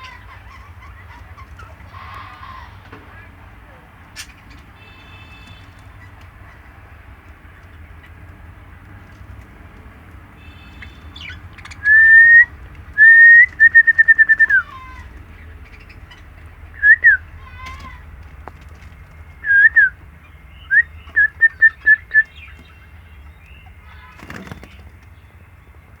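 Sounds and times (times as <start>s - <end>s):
loud whistling: 10.5s - 14.7s, 16.8s - 17.3s, 19.4s - 22.4s.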